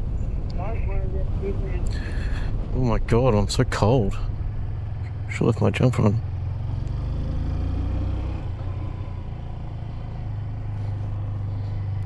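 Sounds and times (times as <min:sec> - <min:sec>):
motorcycle engine running: 0:03.8 - 0:12.0.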